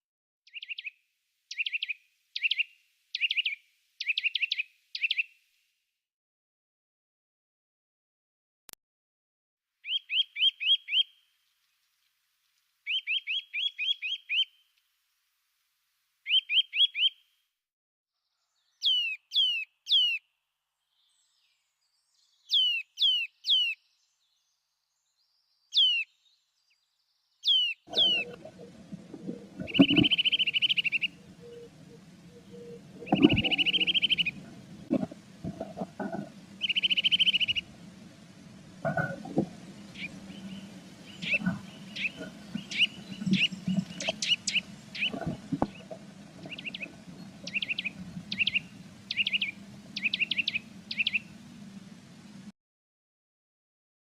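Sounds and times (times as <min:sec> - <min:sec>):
blue tit calls: 0:22.5 - 0:23.8, 0:25.8 - 0:26.1, 0:27.4 - 0:28.6, 0:29.5 - 0:34.5, 0:36.6 - 0:37.8, 0:39.8 - 0:45.8, 0:46.4 - 0:51.4
buzzy churring trills: 0:27.9 - 0:52.5.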